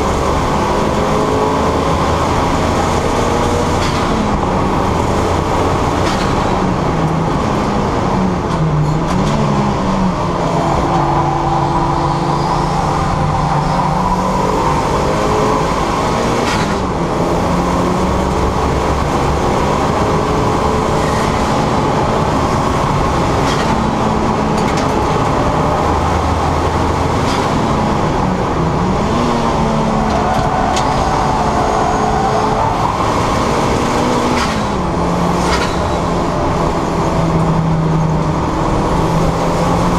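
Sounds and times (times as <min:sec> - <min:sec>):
car engine revving through gears: 0:00.0 - 0:39.9
wind and tyre noise: 0:00.0 - 0:39.9.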